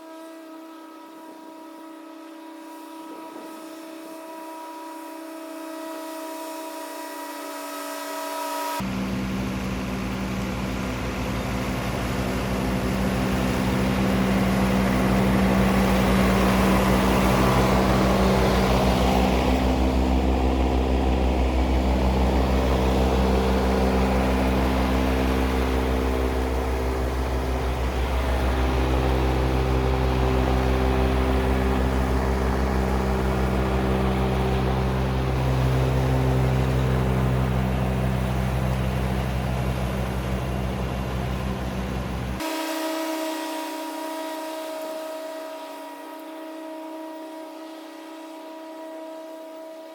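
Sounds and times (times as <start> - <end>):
tractor diesel engine under load: 8.8 - 45.1
mower deck cutting grass: 8.8 - 46.4.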